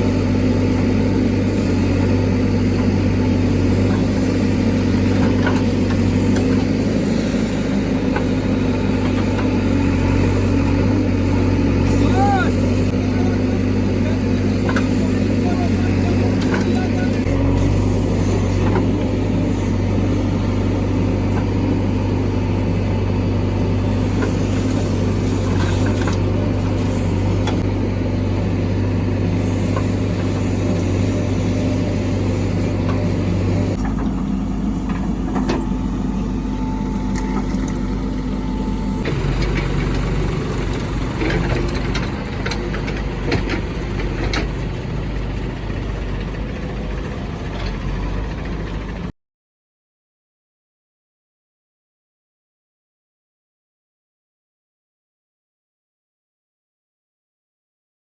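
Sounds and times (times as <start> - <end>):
heavy diesel engine running: 0.0 - 49.1.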